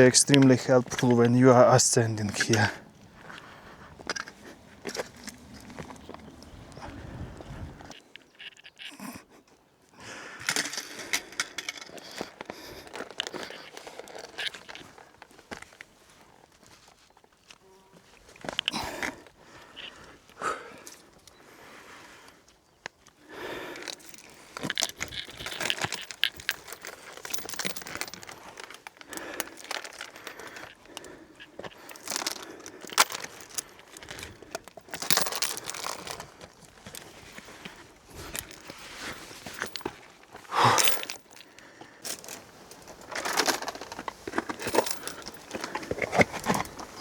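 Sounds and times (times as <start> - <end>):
footsteps crunching on rocks: 0.0 - 7.9, 42.1 - 47.0
clothing and pack rustling: 0.0 - 8.0, 10.6 - 20.3, 22.4 - 47.0.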